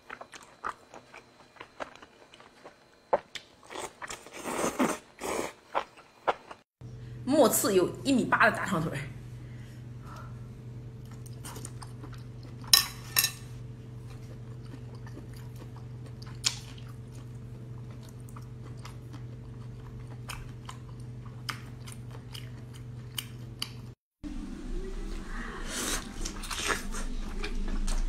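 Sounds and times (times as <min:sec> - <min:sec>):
steady low hum: 0:06.8 - 0:28.0
chewing and biting: 0:14.0 - 0:23.9.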